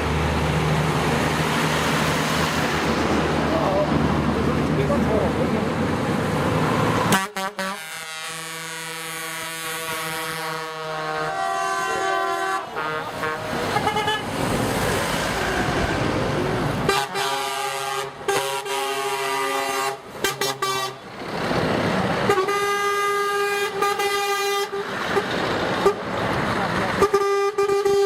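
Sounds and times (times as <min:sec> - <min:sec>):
passing truck engines: 0:00.0 - 0:28.0
truck horns blasting: 0:07.0 - 0:14.5, 0:15.2 - 0:21.2, 0:22.2 - 0:26.1, 0:26.9 - 0:28.0.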